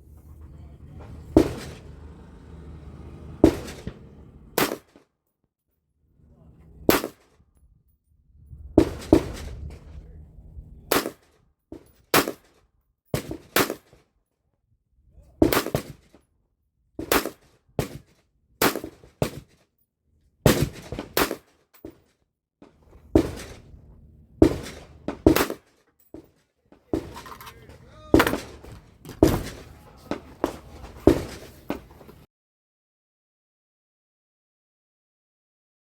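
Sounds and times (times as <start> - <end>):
rifle shots: 3.4 - 4.9, 6.9 - 7.2, 10.9 - 11.2, 17.1 - 18.0, 20.5 - 21.4, 23.2 - 23.8, 24.4 - 25.6, 27.0 - 32.2.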